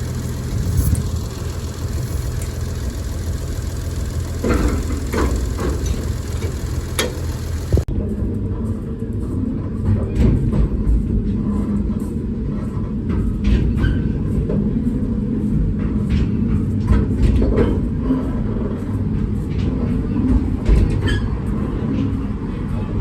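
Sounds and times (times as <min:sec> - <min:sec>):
clacks and knocks: 0:00.0 - 0:07.9
monorail train rumbling: 0:00.0 - 0:23.0.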